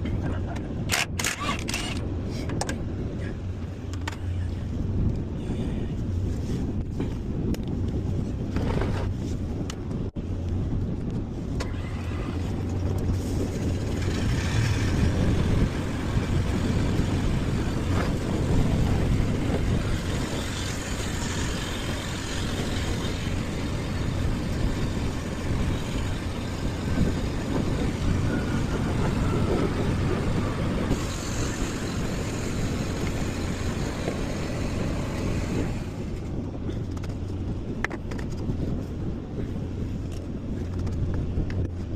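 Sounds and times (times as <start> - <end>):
diesel engine running: 11.6 - 36.9.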